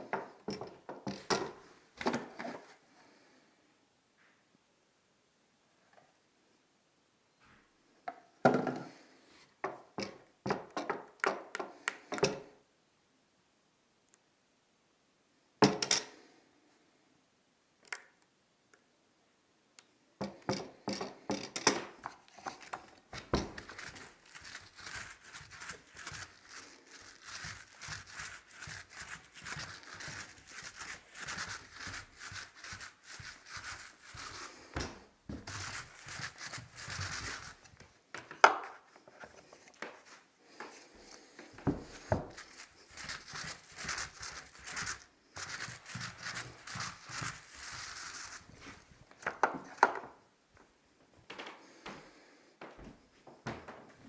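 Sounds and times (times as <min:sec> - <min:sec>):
paper rustling and crinkling: 0:22.0 - 0:49.8.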